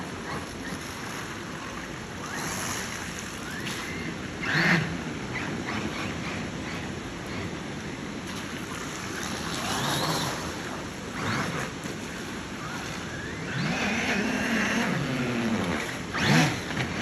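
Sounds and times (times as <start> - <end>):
toy car motor: 1.7 - 6.8, 8.7 - 17.0.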